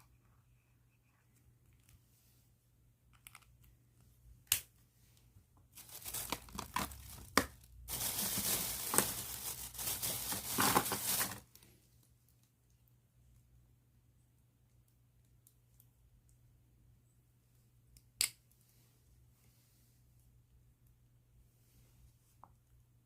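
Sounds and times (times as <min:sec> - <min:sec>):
plastic bag crinkling: 0:05.8 - 0:11.7.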